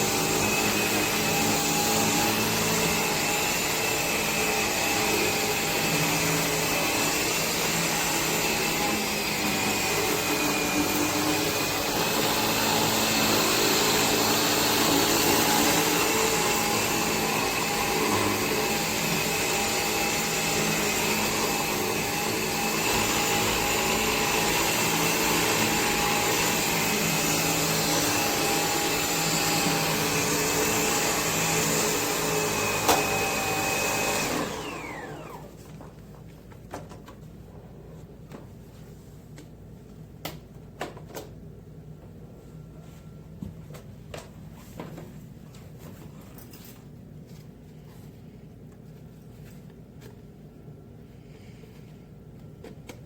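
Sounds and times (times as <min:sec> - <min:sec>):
cordless vacuum running: 0:00.0 - 0:35.7.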